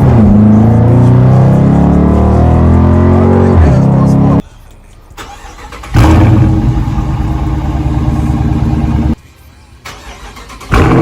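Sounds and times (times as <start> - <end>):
loud car exhaust: 0.0 - 4.4, 6.0 - 9.2.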